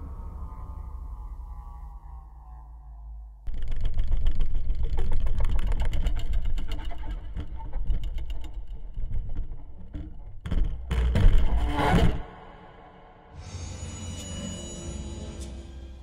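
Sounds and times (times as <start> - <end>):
heavy rumble with crackling clicks: 3.5 - 11.2.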